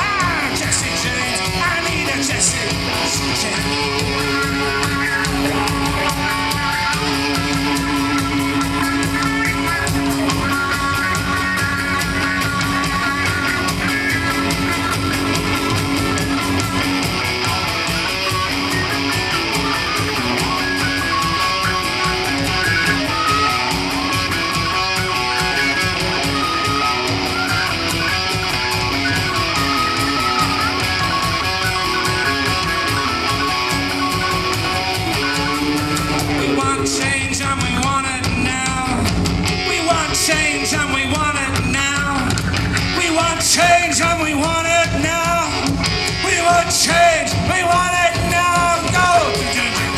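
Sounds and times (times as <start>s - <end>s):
live band playing instrumental: 0.0s - 49.9s.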